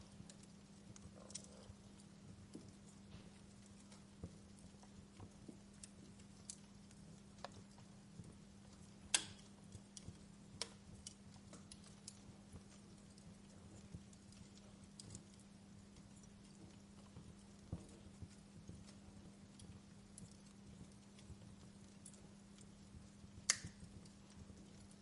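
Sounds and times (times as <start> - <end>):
faint steady low hum: 0.0 - 25.0
wood fire crackling: 0.0 - 25.0.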